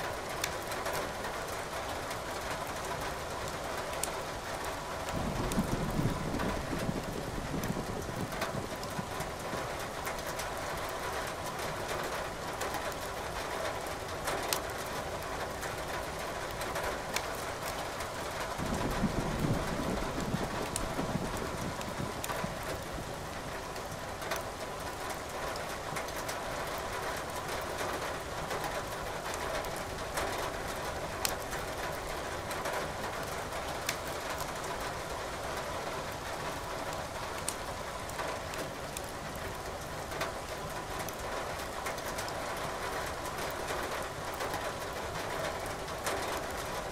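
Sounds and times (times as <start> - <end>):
steady rain: 0.0 - 46.9
wood fire crackling: 0.2 - 4.8, 15.6 - 29.8, 30.7 - 32.3, 33.2 - 35.5, 36.1 - 42.4
distant thunder rumbling: 5.2 - 9.3, 18.3 - 23.5.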